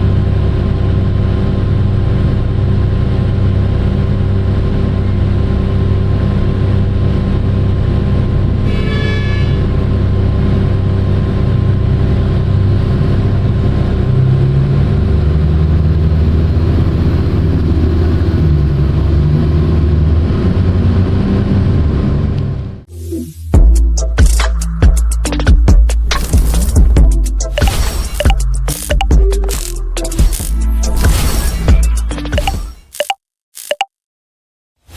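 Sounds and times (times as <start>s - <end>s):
large diesel engine running: 0.0s - 22.9s
brief high horn tone: 8.6s - 9.8s.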